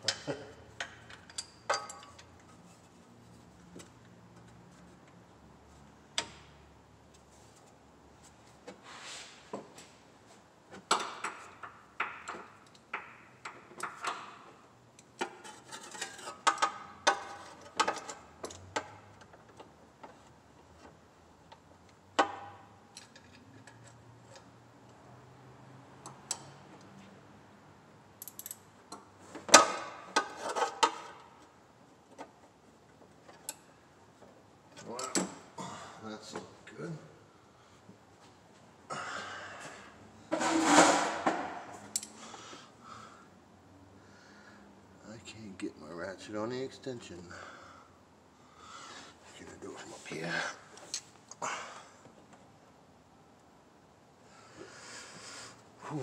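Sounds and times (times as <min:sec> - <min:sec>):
metal tools clinking: 0:01.0 - 0:02.3.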